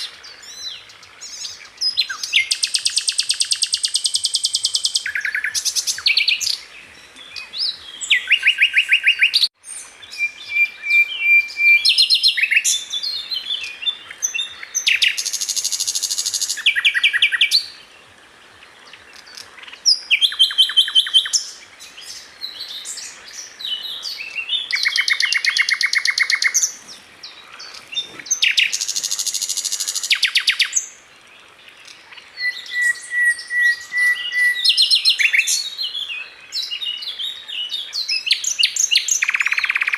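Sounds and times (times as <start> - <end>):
steady bird whistle: 7.4 - 13.2, 32.4 - 35.8.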